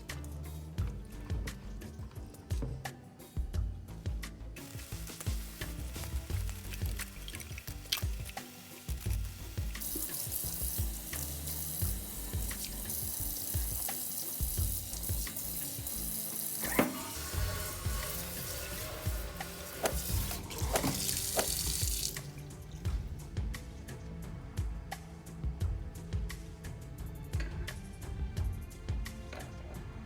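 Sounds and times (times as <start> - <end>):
tap running into sink: 5.2 - 22.3.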